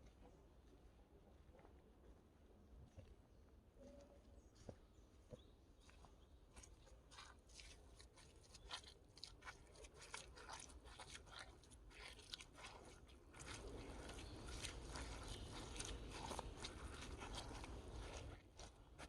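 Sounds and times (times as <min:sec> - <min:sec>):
bare feet walking on mud: 0:04.5 - 0:19.0.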